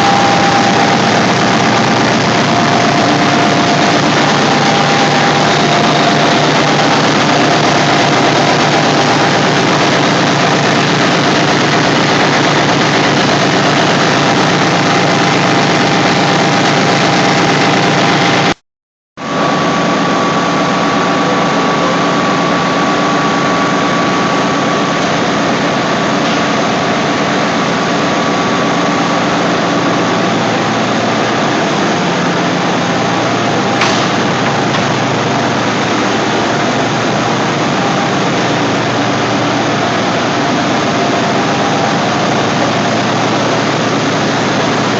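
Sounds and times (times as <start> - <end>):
air compressors droning: 0.0 - 18.6, 19.2 - 44.9
thin steady whine: 0.0 - 18.6.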